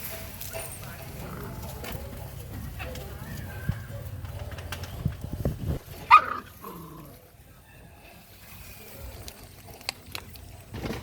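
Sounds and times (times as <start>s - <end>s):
puppy yipping: 6.0s - 6.5s.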